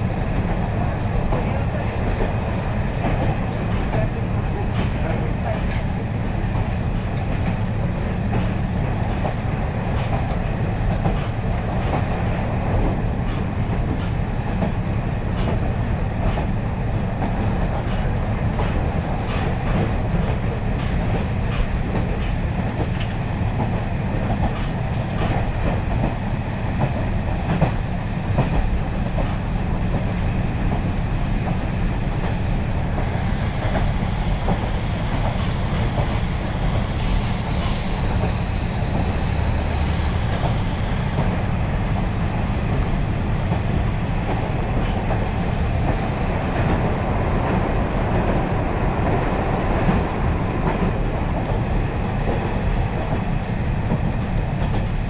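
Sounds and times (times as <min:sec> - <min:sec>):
wheels rumbling on rails: 0:00.0 - 0:55.0
light clicks from track: 0:06.6 - 0:07.6, 0:08.3 - 0:12.2, 0:12.8 - 0:16.5, 0:17.2 - 0:26.1, 0:53.9 - 0:55.0.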